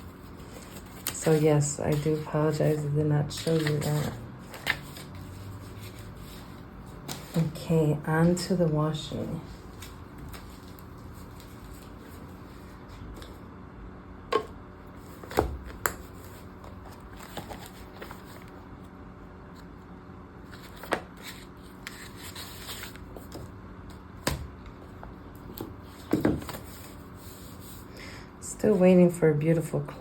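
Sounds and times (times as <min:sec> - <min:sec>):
packaging rustling: 0:15.0 - 0:18.6.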